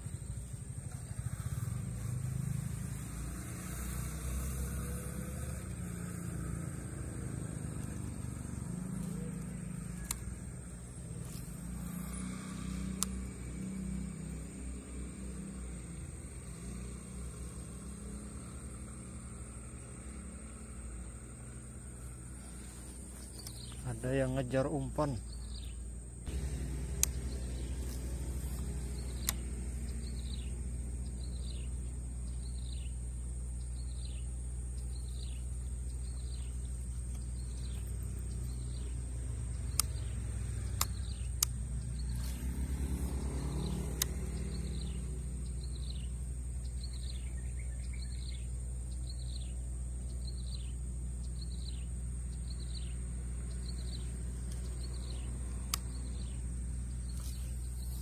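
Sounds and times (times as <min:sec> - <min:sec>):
bird chirping: 0:00.0 - 0:58.0
high insect whine: 0:00.0 - 0:58.0
sharp clicks: 0:07.6 - 0:13.9, 0:26.3 - 0:30.2, 0:37.0 - 0:45.0, 0:53.6 - 0:56.4.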